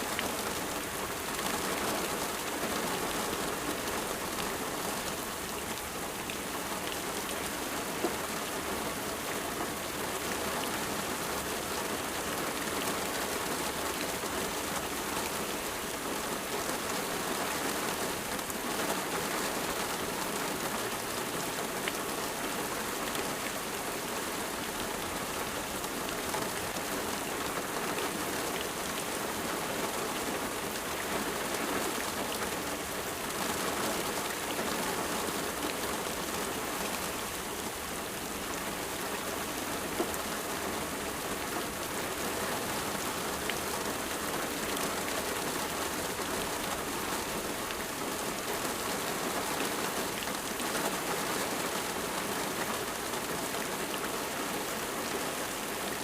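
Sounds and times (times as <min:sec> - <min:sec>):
rain pattering: 0:00.0 - 0:56.0.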